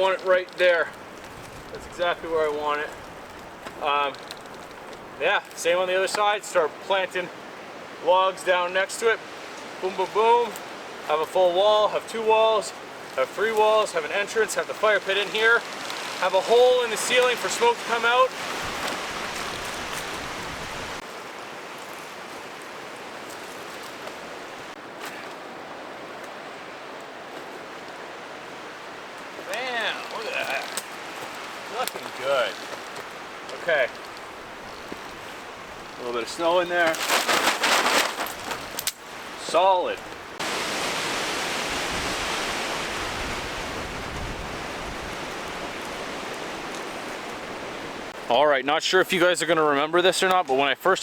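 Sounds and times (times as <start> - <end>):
wind rumble on microphone: 18.4 - 21.0, 40.0 - 48.2.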